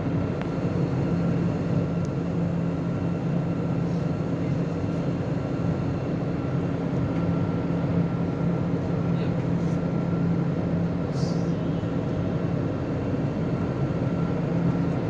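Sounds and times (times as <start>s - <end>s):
jet engine drone in cabin: 0.0s - 15.0s.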